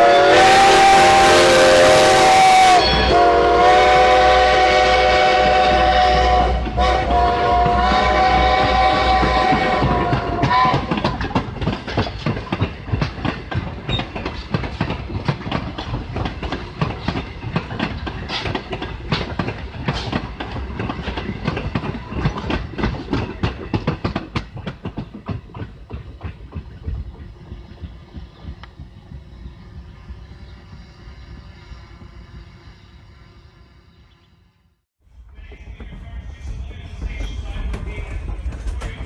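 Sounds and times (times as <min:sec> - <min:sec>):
train whistle blast: 0:00.0 - 0:11.1
steam train rolling past: 0:00.0 - 0:39.0
wheels clicking over rail joints: 0:06.3 - 0:32.6, 0:35.2 - 0:39.0.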